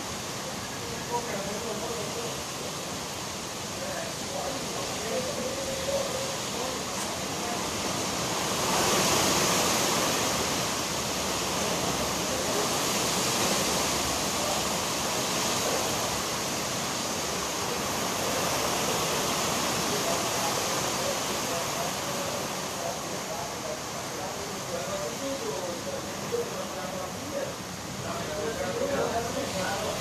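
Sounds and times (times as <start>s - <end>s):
rain: 0.0s - 30.0s
strong wind: 1.7s - 22.6s.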